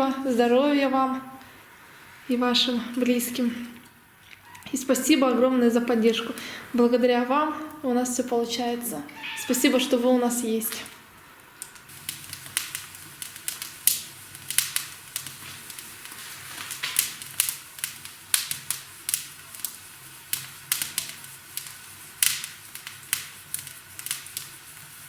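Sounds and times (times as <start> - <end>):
faint low background noise: 0.0 - 25.0
firewood crackling and popping: 9.2 - 25.0.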